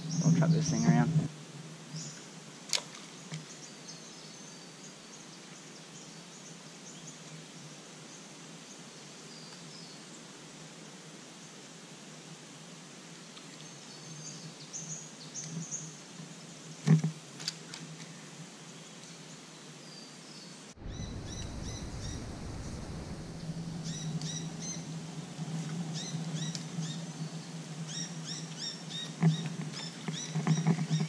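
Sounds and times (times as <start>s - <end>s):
small birds chirping: 19.9s - 24.9s.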